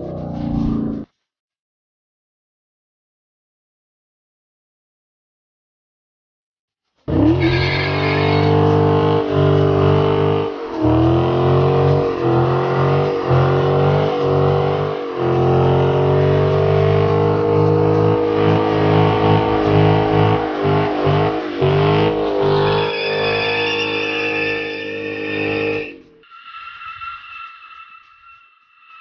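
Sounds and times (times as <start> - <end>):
car engine revving in burnout: 7.1 - 26.2.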